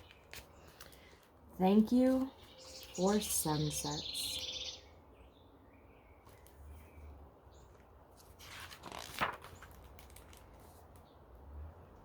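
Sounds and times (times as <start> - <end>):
book page turning: 0.0 - 1.4, 7.6 - 11.0.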